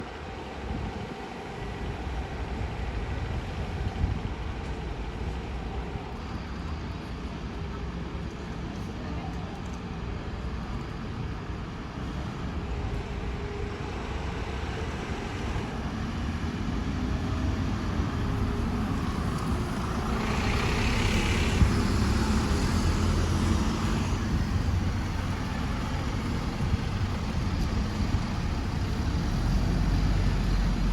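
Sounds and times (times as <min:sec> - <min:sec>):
bus diesel engines rumbling: 0:09.8 - 0:30.9.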